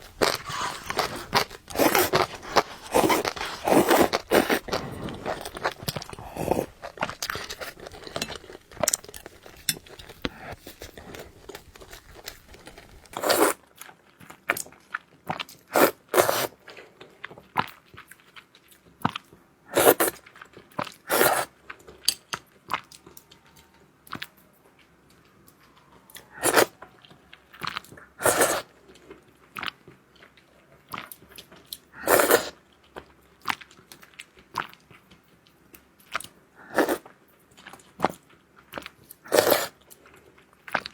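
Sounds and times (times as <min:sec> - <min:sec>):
wet mouth clicks: 0:00.0 - 0:08.3
person chewing and biting food: 0:00.0 - 0:13.6, 0:38.8 - 0:39.9.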